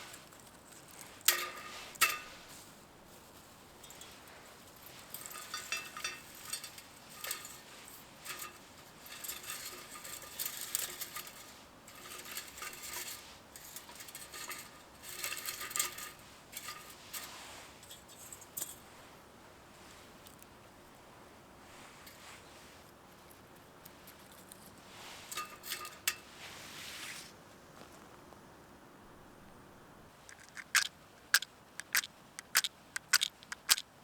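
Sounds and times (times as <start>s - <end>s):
metal items clinking and rattling: 3.8s - 18.8s, 25.3s - 26.2s, 30.3s - 33.8s.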